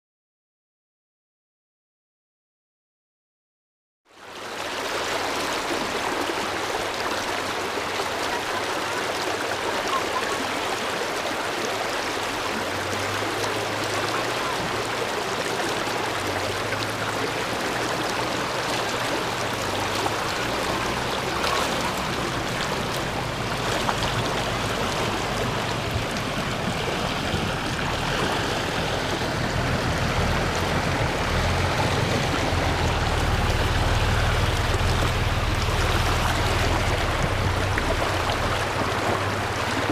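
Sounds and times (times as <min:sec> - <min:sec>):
river water rushing and splashing: 0:04.1 - 0:39.9
low engine drone: 0:12.9 - 0:39.9.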